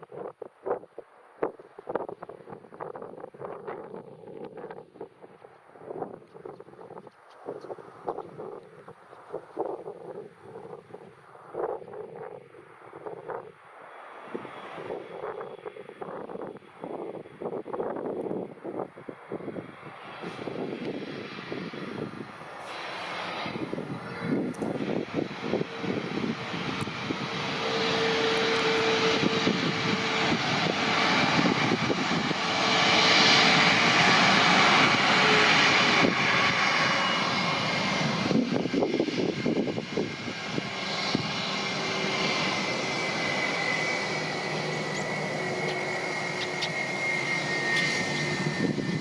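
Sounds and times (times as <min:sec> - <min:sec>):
airliner engines running: 0:01.5 - 0:49.0
high engine whine: 0:19.4 - 0:49.0.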